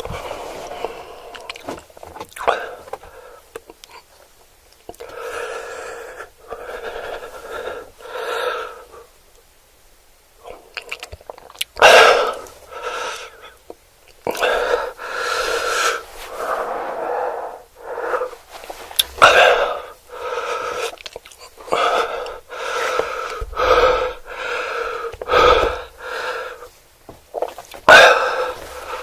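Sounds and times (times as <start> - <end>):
person chewing: 1.3 - 4.1, 10.4 - 11.8, 18.9 - 19.3, 20.8 - 23.4
loud breaths: 5.0 - 9.1, 11.8 - 13.6, 14.3 - 21.0, 21.6 - 26.8, 27.8 - 29.0.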